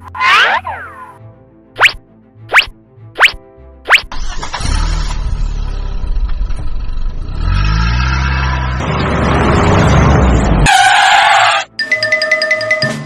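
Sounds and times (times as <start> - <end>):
vehicle engine rumbling and revving: 3.9 - 11.4.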